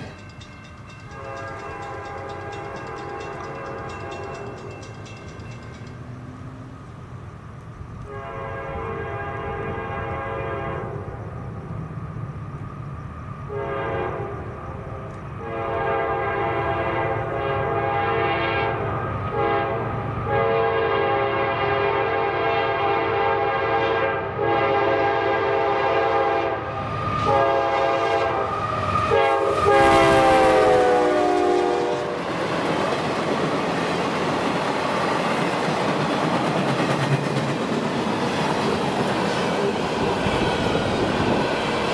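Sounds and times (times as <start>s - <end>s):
train cars rumbling by: 0.0s - 41.9s
locomotive air horn blasts: 1.1s - 4.6s, 8.0s - 11.2s, 13.5s - 32.3s.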